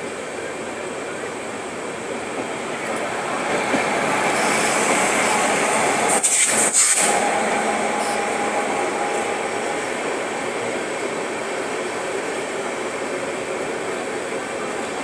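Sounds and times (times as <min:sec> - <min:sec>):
train wheels rumbling on rails: 0:00.0 - 0:15.0
hissing rush: 0:03.1 - 0:10.4.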